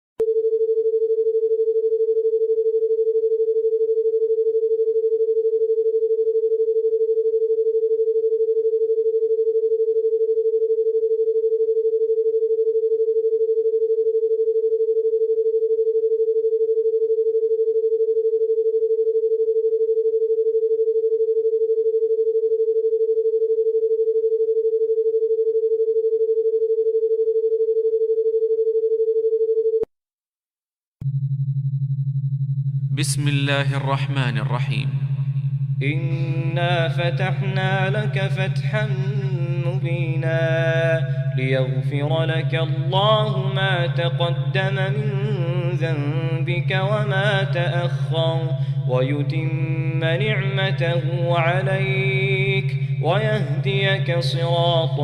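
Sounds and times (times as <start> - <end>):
steady electronic tone: 31.0 - 55.0.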